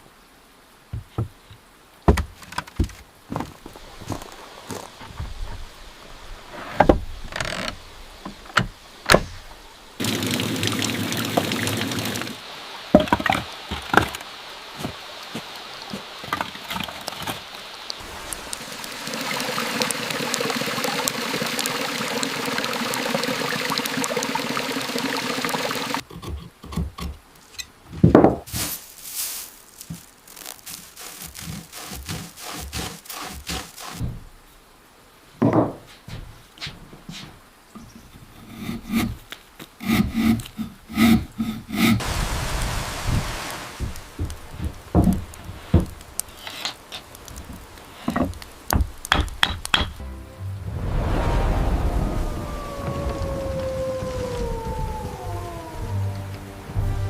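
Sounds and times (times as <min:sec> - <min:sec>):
knocks and thunks: 0:00.9 - 0:01.5, 0:02.1 - 0:03.7, 0:34.0 - 0:34.3, 0:43.8 - 0:46.0, 0:47.5 - 0:50.0
water pouring and running: 0:03.3 - 0:26.1, 0:28.5 - 0:34.4, 0:42.0 - 0:50.0, 0:50.6 - 0:57.0.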